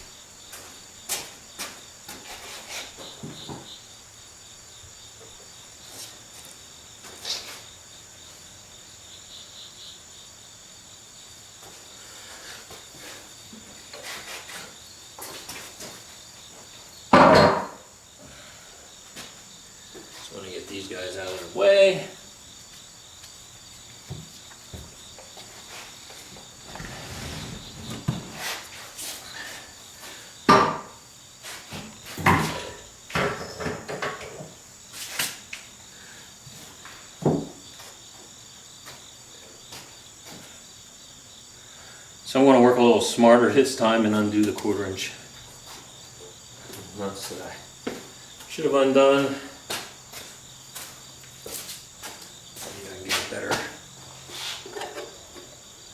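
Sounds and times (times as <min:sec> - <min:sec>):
faint knocks and rustles: 0:00.0 - 0:03.8, 0:23.7 - 0:29.3, 0:36.5 - 0:39.0, 0:49.7 - 0:55.6
tools knocking and clunking: 0:17.1 - 0:17.8, 0:54.6 - 0:55.6.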